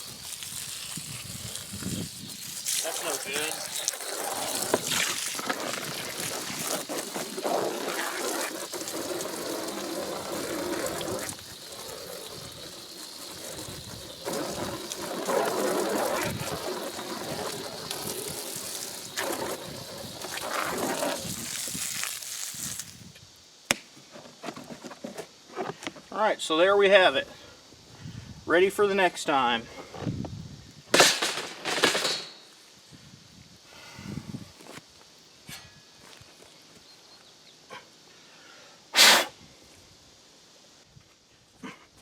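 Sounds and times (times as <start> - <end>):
running water splashing: 0.0 - 23.0.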